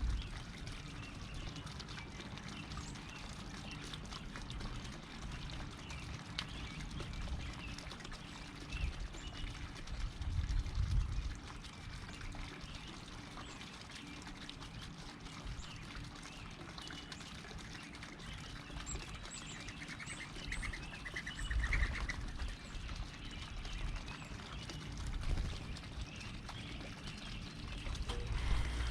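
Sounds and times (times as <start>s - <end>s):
wild birds chirping: 12.5s - 28.9s.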